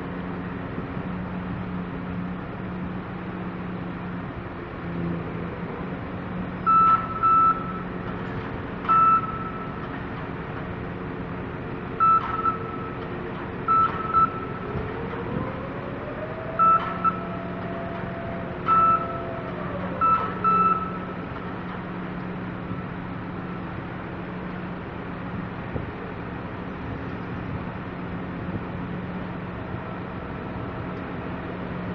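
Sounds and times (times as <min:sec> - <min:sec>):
crane machinery humming: 0:00.0 - 0:31.9
electronic warning beeps: 0:06.7 - 0:07.9, 0:08.9 - 0:09.8, 0:12.0 - 0:13.0, 0:13.7 - 0:14.6, 0:16.6 - 0:19.3, 0:20.0 - 0:21.1.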